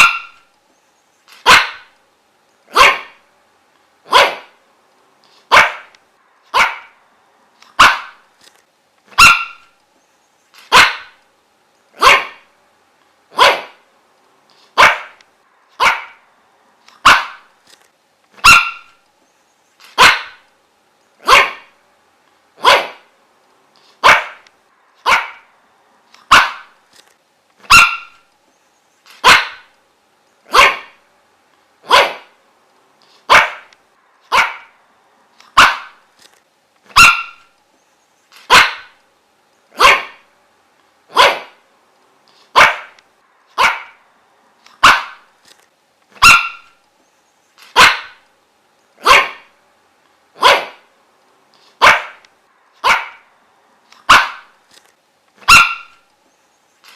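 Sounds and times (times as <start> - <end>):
dog barking: 0.0 - 0.4, 1.4 - 1.9, 2.7 - 3.2, 4.0 - 4.6, 5.5 - 5.9, 6.5 - 7.0, 7.8 - 8.2, 9.1 - 9.7, 10.7 - 11.2, 12.0 - 12.5, 13.3 - 13.8, 14.8 - 15.2, 15.8 - 16.2, 17.0 - 17.5, 18.4 - 19.0, 20.0 - 20.4, 21.2 - 21.8, 22.6 - 23.1, 24.0 - 24.4, 25.0 - 25.5, 26.2 - 26.8, 27.6 - 28.2, 29.2 - 29.7, 30.5 - 31.0, 31.8 - 32.4, 33.3 - 33.7, 34.3 - 34.8, 35.5 - 36.0, 36.9 - 37.5, 38.5 - 39.0, 39.8 - 40.3, 41.1 - 41.6, 42.5 - 43.0, 43.6 - 44.0, 44.8 - 45.3, 46.2 - 46.8, 47.8 - 48.2, 49.0 - 49.5, 50.4 - 50.9, 51.8 - 52.2, 52.8 - 53.3, 54.0 - 54.5, 55.4 - 56.0.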